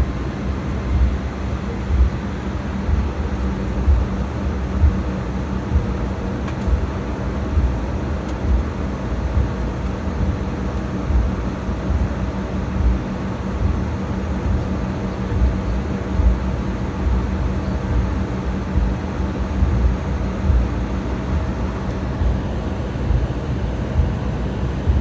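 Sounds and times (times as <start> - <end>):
jet engine hum: 0.0 - 25.0.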